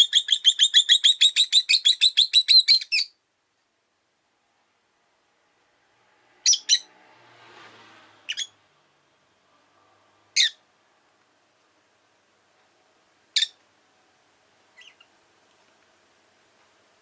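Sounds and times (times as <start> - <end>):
lovebirds chirping: 0.0 - 3.2, 6.5 - 6.9, 8.3 - 8.6, 10.4 - 10.6, 13.3 - 13.6, 14.7 - 15.2.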